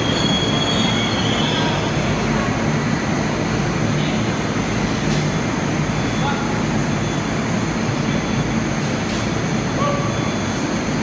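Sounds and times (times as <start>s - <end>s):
high wheel squeal: 0.0s - 1.8s
subway car moving: 0.0s - 11.0s.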